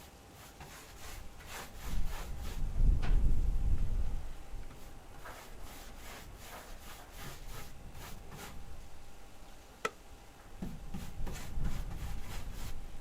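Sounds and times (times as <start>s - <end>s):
paintbrush strokes on wood: 0.0s - 2.7s, 4.7s - 8.6s, 10.6s - 12.9s.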